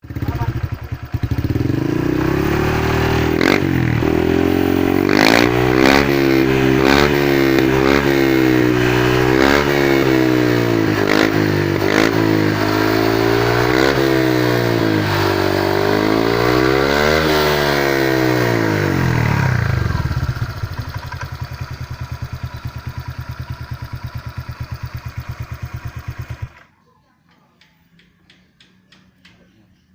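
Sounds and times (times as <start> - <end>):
scooter engine idling: 0.0 - 16.7, 17.7 - 26.8
scooter engine revving: 0.0 - 26.7
exhaust cracks: 1.3 - 22.0.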